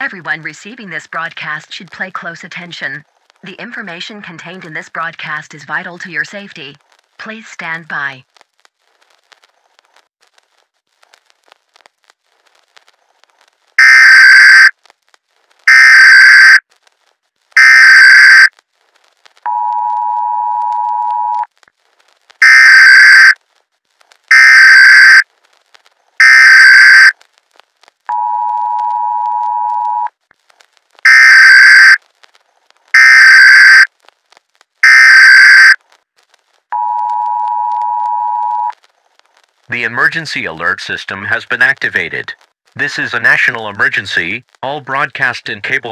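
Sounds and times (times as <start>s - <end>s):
screeching digital data bursts: 13.8s - 14.7s, 15.7s - 16.6s, 17.6s - 18.5s, 22.4s - 23.4s, 24.3s - 25.2s, 26.2s - 27.1s, 31.1s - 32.0s, 33.0s - 33.9s, 34.8s - 35.8s.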